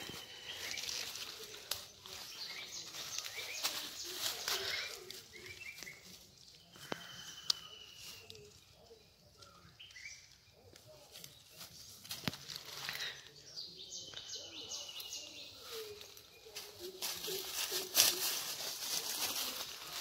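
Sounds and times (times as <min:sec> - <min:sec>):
dry leaves rustling: 0:00.0 - 0:07.2, 0:10.8 - 0:13.4, 0:15.2 - 0:20.0
birds chirping: 0:00.0 - 0:20.0.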